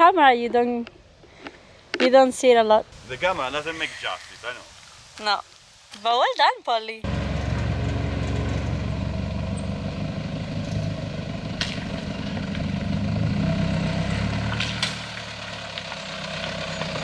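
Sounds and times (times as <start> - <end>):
car engine running at low revs: 7.0 - 17.0.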